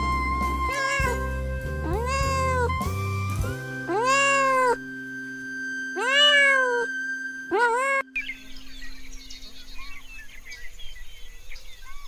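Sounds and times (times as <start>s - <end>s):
background music with held notes: 0.0s - 10.4s
cat meowing: 0.6s - 2.8s, 3.9s - 4.8s, 6.0s - 6.9s, 7.5s - 8.0s.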